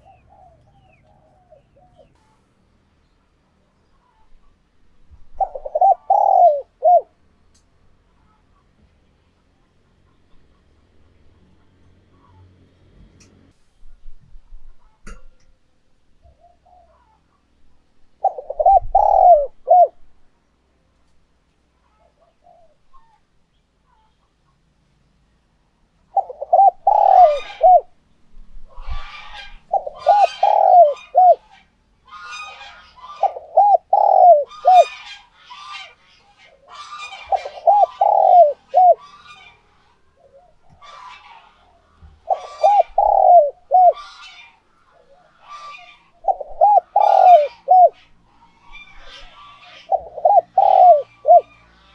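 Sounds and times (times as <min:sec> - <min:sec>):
dove cooing: 0:00.0 - 0:02.2, 0:05.2 - 0:07.2, 0:16.2 - 0:17.2, 0:18.1 - 0:20.0, 0:21.9 - 0:23.1, 0:26.1 - 0:28.0, 0:28.6 - 0:35.9, 0:36.5 - 0:39.6, 0:40.2 - 0:51.9.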